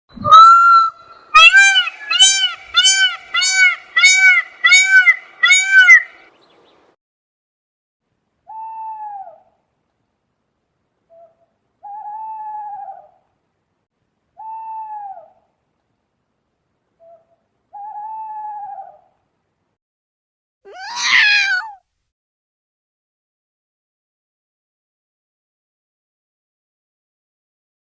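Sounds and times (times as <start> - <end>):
fast repeated calls: 0.2 - 6.2
owl hooting: 0.2 - 6.3, 11.1 - 13.2.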